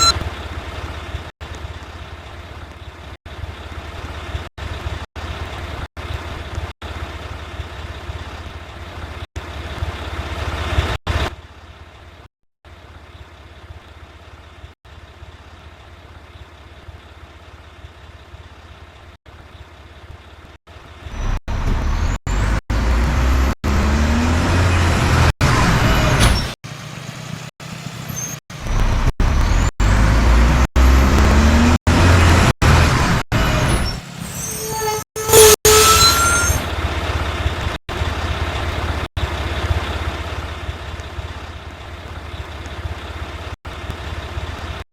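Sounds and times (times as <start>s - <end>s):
diesel truck engine revving: 21.0s - 34.6s.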